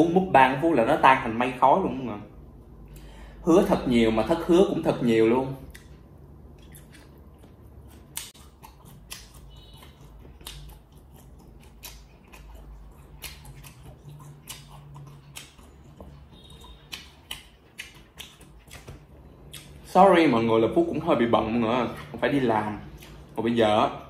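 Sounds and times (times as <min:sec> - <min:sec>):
chewing with wet smacks: 0:05.5 - 0:20.0, 0:20.7 - 0:23.4.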